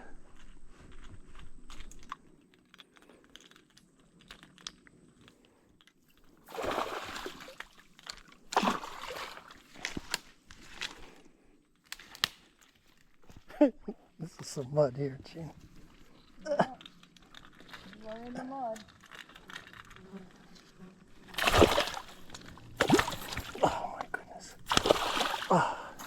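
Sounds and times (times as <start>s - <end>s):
crunches and clicks: 0.2s - 6.4s, 9.8s - 13.5s, 15.6s - 25.0s
muddy water splashing: 6.4s - 10.9s, 21.2s - 26.0s.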